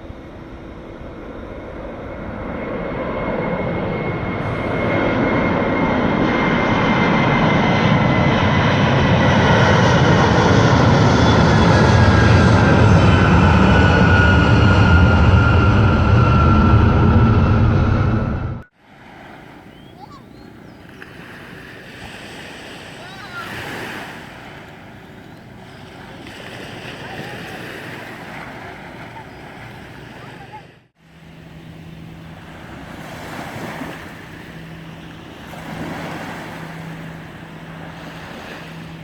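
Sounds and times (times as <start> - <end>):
airliner engine rumble overhead: 0.0 - 39.0
high engine whine falling: 0.1 - 18.7.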